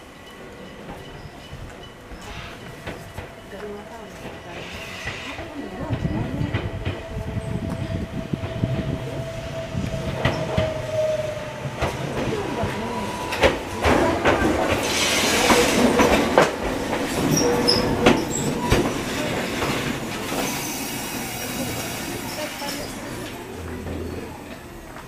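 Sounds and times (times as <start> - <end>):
train rolling rumble: 0.0 - 25.0.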